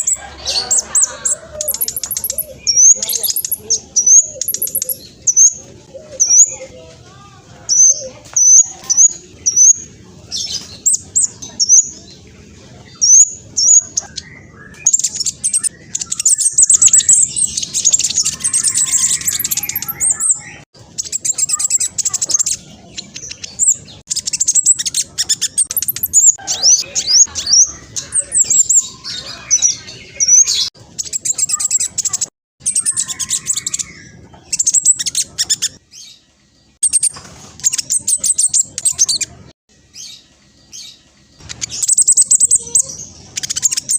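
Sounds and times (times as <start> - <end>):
bird singing trills: 0.0 - 6.8, 7.6 - 43.9.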